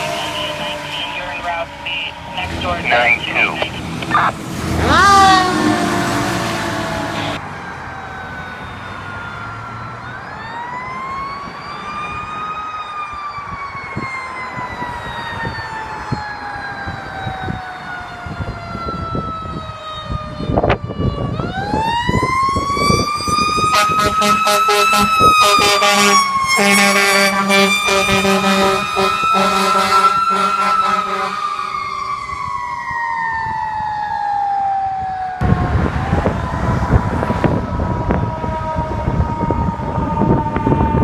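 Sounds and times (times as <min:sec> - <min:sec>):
truck engine rumble: 0:00.0 - 0:12.6, 0:17.0 - 0:34.2, 0:35.4 - 0:41.0
fire truck siren wailing: 0:00.0 - 0:41.0
short horn blasts: 0:23.7 - 0:31.4.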